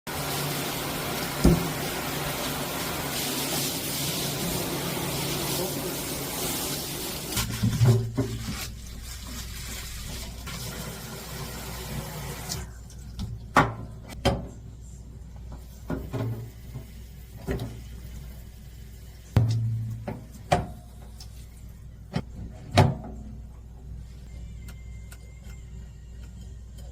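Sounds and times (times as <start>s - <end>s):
water running from faucet: 0.1s - 12.7s.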